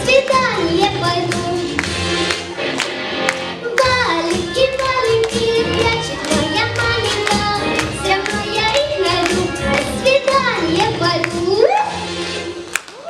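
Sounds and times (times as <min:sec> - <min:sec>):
child singing: 0:00.0 - 0:01.7, 0:03.6 - 0:11.6.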